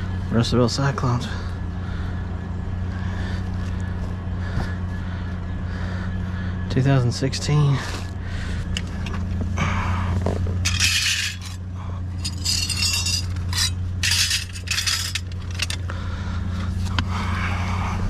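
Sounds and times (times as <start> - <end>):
steady low hum: 0.0 - 18.0
trash scraping and clinking: 10.2 - 15.8.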